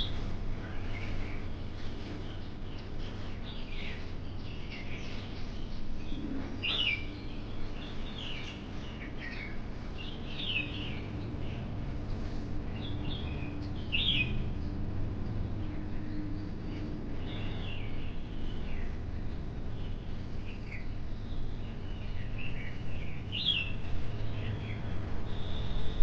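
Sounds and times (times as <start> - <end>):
low background rumble: 0.0 - 26.0
birds chirping: 12.7 - 14.8, 19.6 - 26.0.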